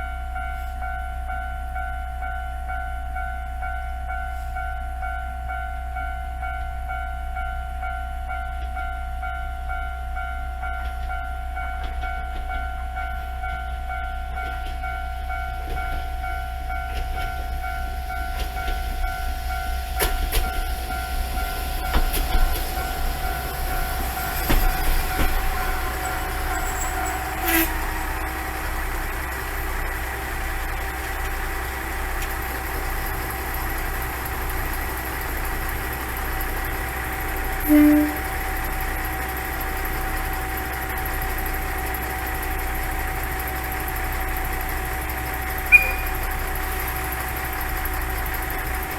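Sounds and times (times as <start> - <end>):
diesel railcar engine hum: 0.0 - 48.9
steady tones: 18.1 - 35.1
short loud tone: 45.7 - 46.2.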